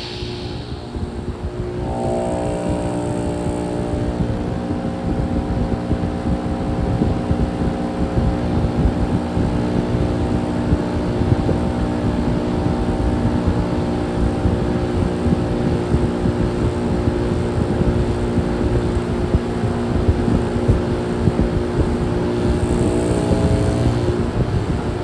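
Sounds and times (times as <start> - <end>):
rumbling rush of air: 0.0 - 3.2
compressor humming: 0.0 - 25.0.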